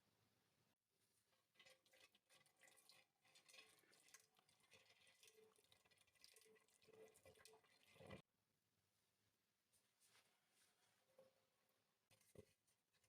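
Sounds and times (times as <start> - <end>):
liquid trickling and splashing: 1.4 - 8.2
small drips and clicks: 1.4 - 8.2.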